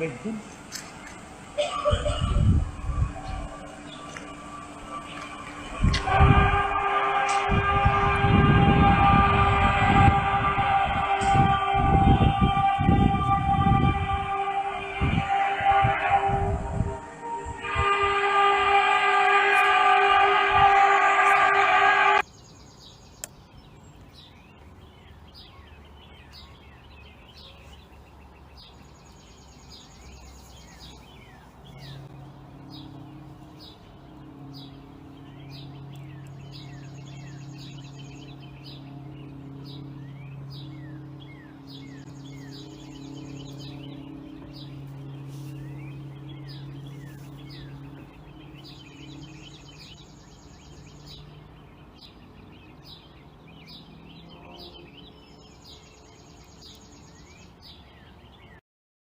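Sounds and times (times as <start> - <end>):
low droning hum: 0.0 - 27.3, 27.9 - 58.6
birds chirping: 0.0 - 58.6
higher tone: 1.4 - 22.2, 31.7 - 51.4.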